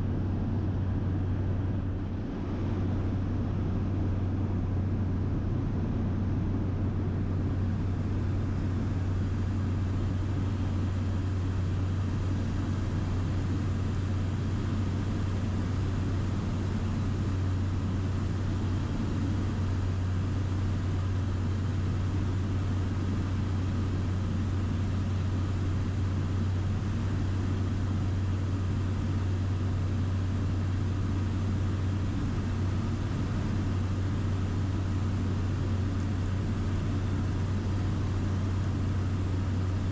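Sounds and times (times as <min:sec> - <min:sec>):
small plane cabin hum: 0:00.0 - 0:39.9.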